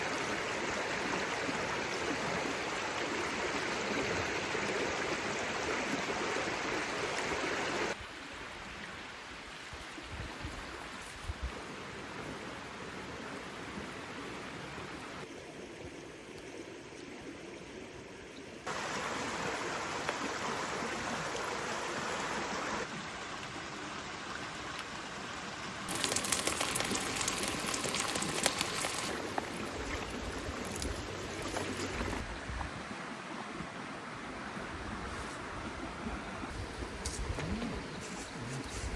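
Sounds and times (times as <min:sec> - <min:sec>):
rain hissing: 0:18.7 - 0:22.9, 0:25.8 - 0:32.2
sharp crackles: 0:25.9 - 0:32.2.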